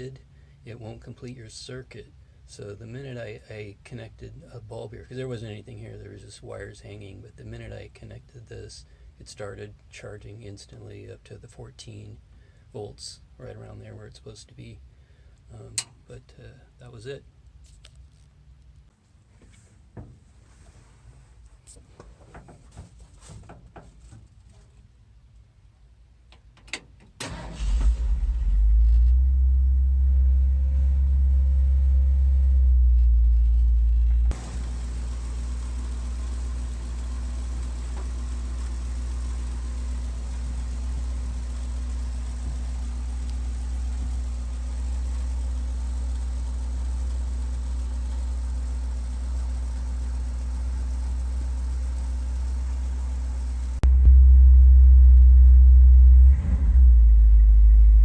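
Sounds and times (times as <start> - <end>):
engine idling with deep rumble: 27.6 - 58.0.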